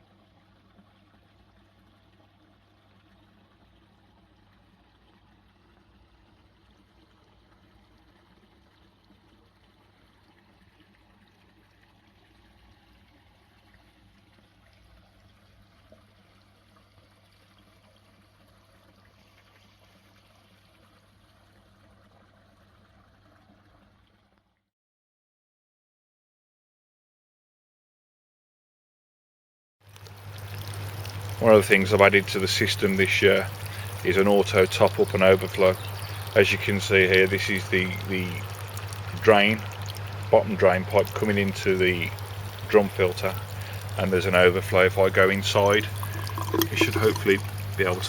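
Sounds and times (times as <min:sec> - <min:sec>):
water trickling into pond: 0:00.0 - 0:24.7, 0:29.8 - 0:48.0
low steady hum: 0:29.9 - 0:48.0.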